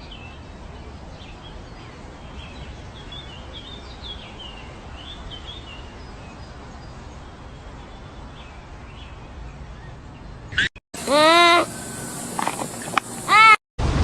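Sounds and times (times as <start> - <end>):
outdoor background rumble: 9.7 - 14.0.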